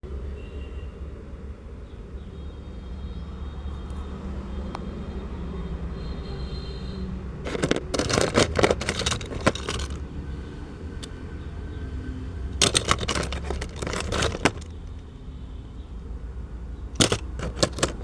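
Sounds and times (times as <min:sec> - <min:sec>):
rapid loud clattering: 0:07.4 - 0:10.0, 0:12.6 - 0:15.0, 0:17.0 - 0:18.0.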